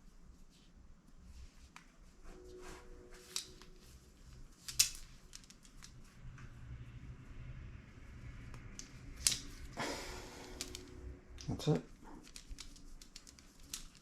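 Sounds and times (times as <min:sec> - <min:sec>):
beads clicking: 0:03.2 - 0:06.1, 0:08.5 - 0:14.0.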